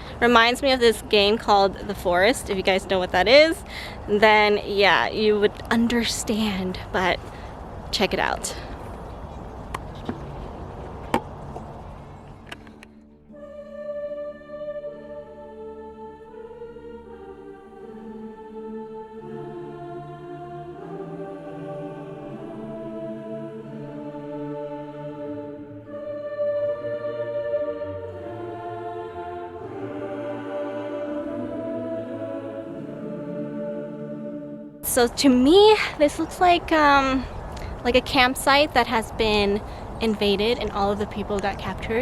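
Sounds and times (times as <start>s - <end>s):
slow music of held tones: 11.7s - 35.4s
choral voices holding chords: 11.9s - 36.4s.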